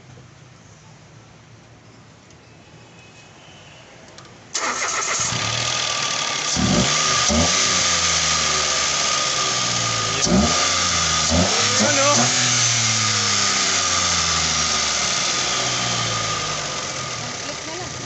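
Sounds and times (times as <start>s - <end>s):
car engine starting and running: 4.5s - 18.0s.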